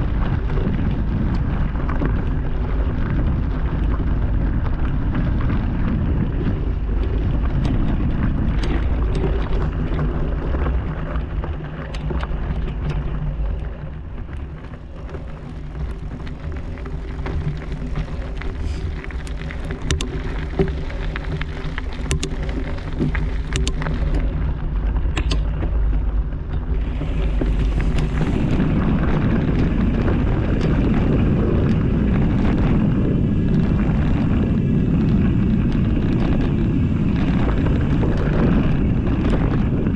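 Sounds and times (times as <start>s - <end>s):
bike tyres rumbling over dirt: 0.0s - 39.9s
wind on microphone: 0.0s - 39.9s
sharp clicks and knocks: 17.0s - 28.3s.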